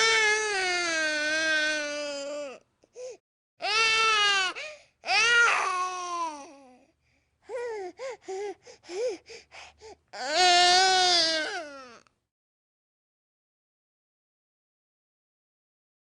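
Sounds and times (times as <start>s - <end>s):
baby crying: 0.0s - 6.8s, 10.2s - 12.1s.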